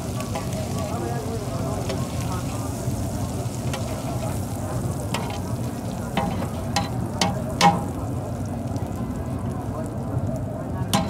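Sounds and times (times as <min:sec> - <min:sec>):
liver sizzling in oil: 0:00.0 - 0:11.0
spatula clacking against pan: 0:05.1 - 0:05.5, 0:06.1 - 0:08.0
metal spatula scraping pan: 0:05.2 - 0:05.5, 0:06.2 - 0:07.9.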